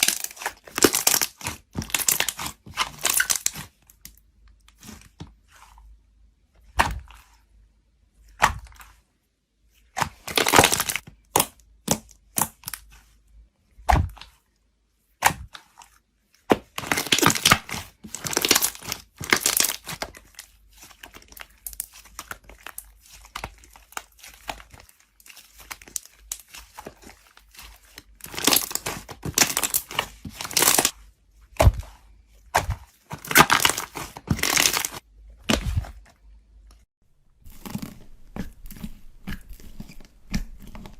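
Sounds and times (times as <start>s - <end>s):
slime crackling and popping: 0.0s - 3.7s, 10.0s - 12.8s, 16.6s - 20.3s, 27.5s - 30.9s, 33.2s - 35.6s, 37.4s - 40.9s.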